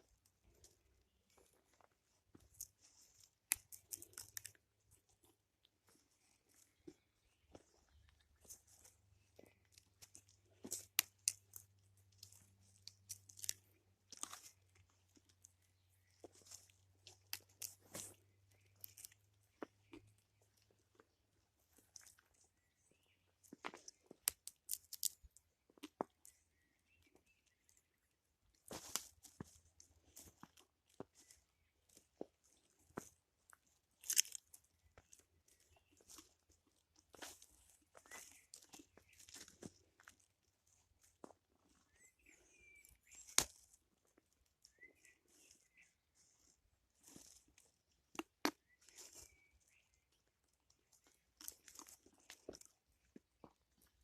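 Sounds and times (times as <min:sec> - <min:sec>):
footsteps crunching on forest floor: 0:05.2 - 0:10.9, 0:15.7 - 0:20.1, 0:28.6 - 0:47.8
faint bird chirps: 0:37.2 - 0:40.0, 0:41.5 - 0:47.6, 0:48.6 - 0:51.7.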